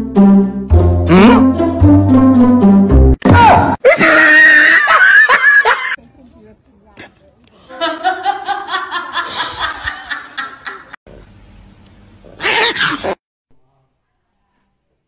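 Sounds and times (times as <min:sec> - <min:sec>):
person laughing hard: 0:03.8 - 0:06.0, 0:07.8 - 0:10.9.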